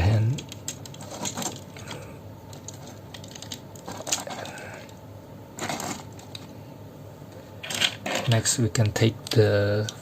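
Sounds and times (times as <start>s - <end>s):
plastic parts clicking and clacking: 0.2s - 5.0s, 5.6s - 6.5s, 7.6s - 8.5s.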